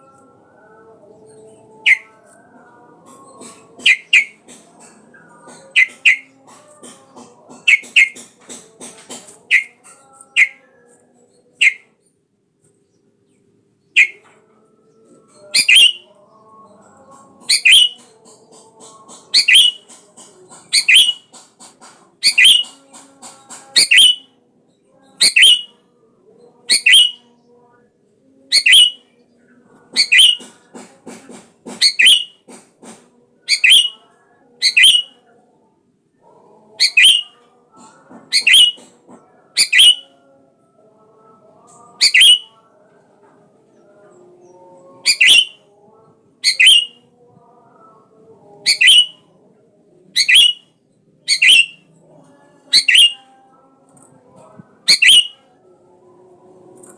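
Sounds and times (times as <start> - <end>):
bulbul calling sharp notes: 3.8 - 4.5, 5.8 - 6.4, 7.6 - 8.3, 9.5 - 9.8, 14.0 - 14.2, 15.6 - 16.1, 17.4 - 18.0, 19.3 - 20.0, 20.6 - 21.3, 22.2 - 22.8, 23.8 - 24.2, 25.2 - 25.7, 26.7 - 27.2, 28.5 - 29.0, 30.0 - 30.5, 31.8 - 32.4, 33.5 - 34.0, 34.6 - 35.1, 36.8 - 37.3, 38.3 - 38.8, 39.6 - 40.1, 42.0 - 42.5, 45.1 - 45.6, 46.4 - 47.0, 48.7 - 49.2, 50.2 - 50.6, 51.3 - 51.8, 52.7 - 53.2, 54.9 - 55.4.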